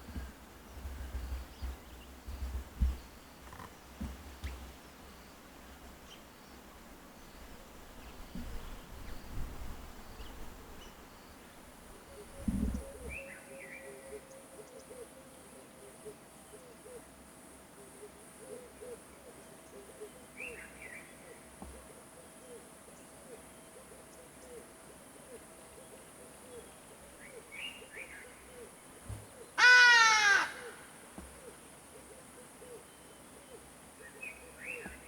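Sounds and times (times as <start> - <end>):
low repeated calls: 29.6 - 31.0.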